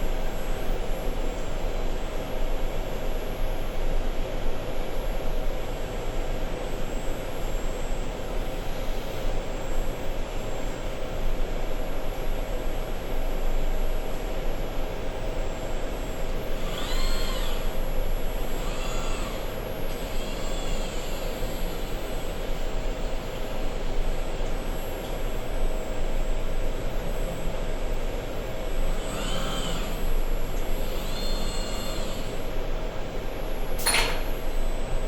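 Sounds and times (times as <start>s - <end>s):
motor whine: 14.9s - 35.0s.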